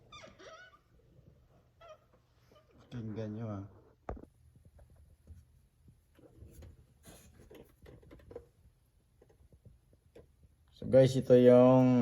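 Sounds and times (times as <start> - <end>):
light ticks and rubbing: 4.3 - 10.7.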